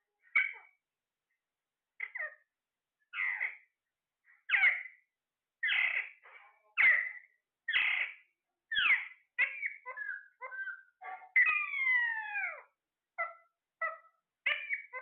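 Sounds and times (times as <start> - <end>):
parrot squawking: 0.3 - 0.7, 2.0 - 2.4, 3.1 - 3.6, 4.5 - 5.0, 5.6 - 6.2, 6.8 - 15.0.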